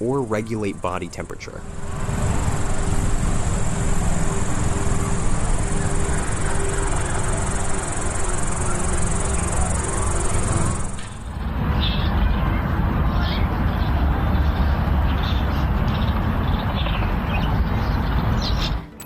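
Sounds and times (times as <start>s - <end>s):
insects buzzing: 0.0s - 13.4s
heavy low rumble: 0.0s - 18.3s.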